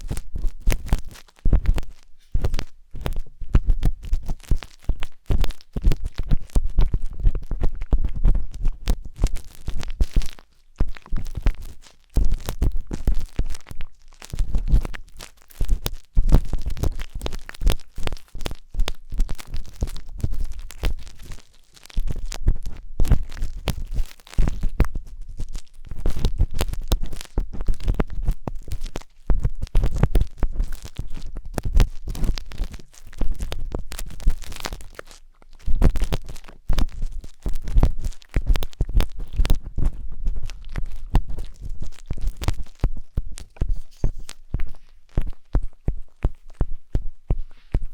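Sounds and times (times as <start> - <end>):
skewer scratching microphone: 35.8 - 47.9.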